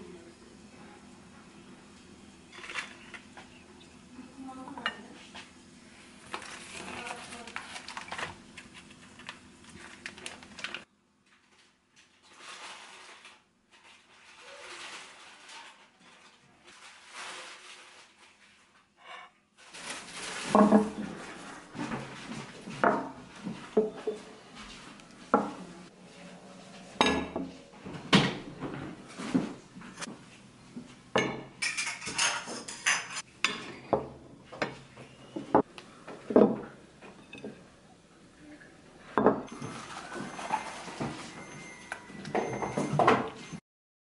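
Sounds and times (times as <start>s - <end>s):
dishes and cutlery clinking: 31.2s - 34.8s, 39.2s - 43.6s.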